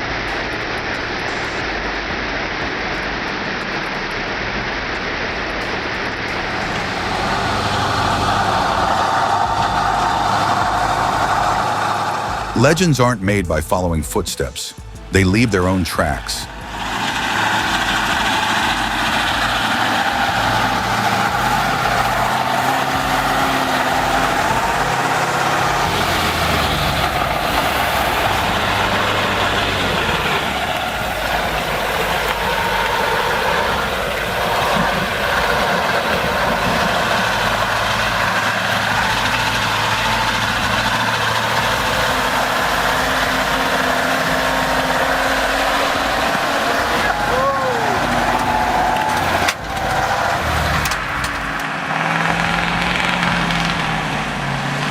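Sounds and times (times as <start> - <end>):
heavy truck engine running: 0.0 - 54.9.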